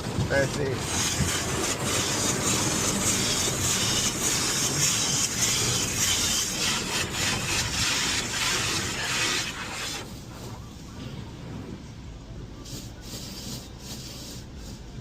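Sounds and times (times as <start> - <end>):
water spray and machinery rushing: 0.0 - 10.6
wash brushes slapping: 0.4 - 10.1.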